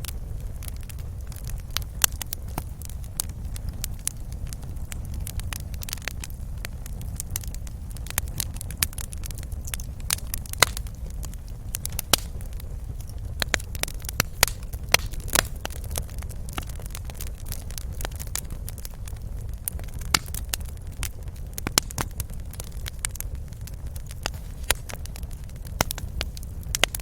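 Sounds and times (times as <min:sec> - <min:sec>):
low rumble of flames: 0:00.0 - 0:27.0
wood fire crackling and popping: 0:00.0 - 0:27.0.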